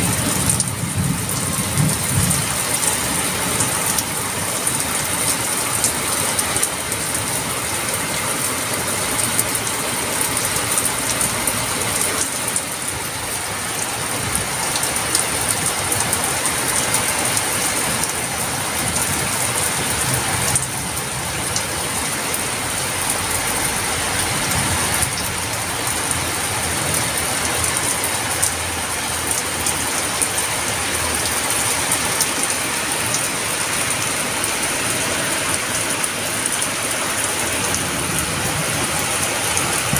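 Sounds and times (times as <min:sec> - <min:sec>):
heavy rain hissing: 0:00.0 - 0:39.9
raindrops ticking on surfaces: 0:00.0 - 0:39.9.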